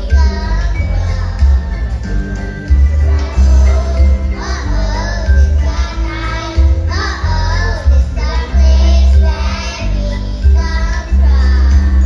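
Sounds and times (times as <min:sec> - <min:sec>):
children singing: 0:00.0 - 0:12.0
music with heavy bass: 0:00.0 - 0:12.0.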